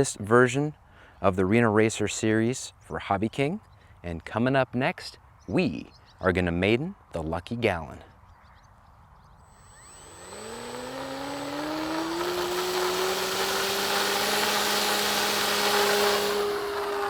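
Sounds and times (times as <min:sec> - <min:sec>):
electric motor whine rising: 0:09.5 - 0:17.0
propeller rushing: 0:09.6 - 0:17.0.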